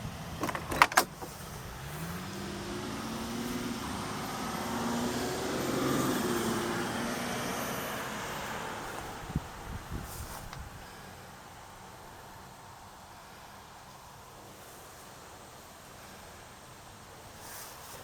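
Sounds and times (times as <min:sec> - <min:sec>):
car door latch clicks: 0:00.4 - 0:01.3
vehicle passing by: 0:01.3 - 0:11.3.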